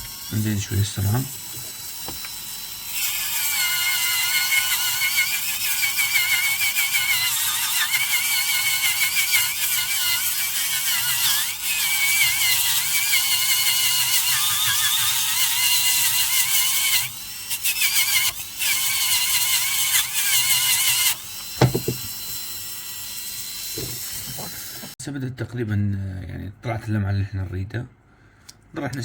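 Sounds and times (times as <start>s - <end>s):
dental drill whine: 0.0s - 25.0s
knock: 21.6s - 22.1s.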